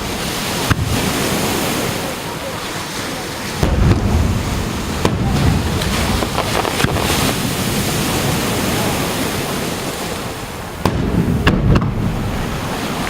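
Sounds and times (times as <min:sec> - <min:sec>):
sea surf washing onto beach: 0:00.0 - 0:13.0
wind buffeting microphone: 0:00.0 - 0:13.0.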